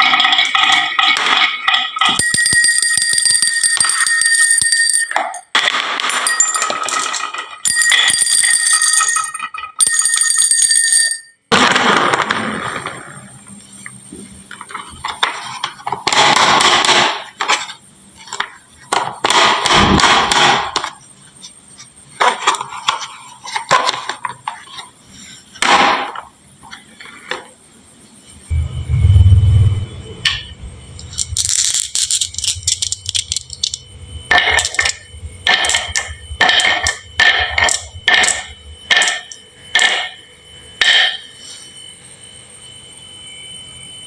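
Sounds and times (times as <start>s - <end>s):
glass marbles clattering: 0.0s - 11.4s, 31.0s - 40.2s
small metal bell ringing: 1.9s - 11.5s.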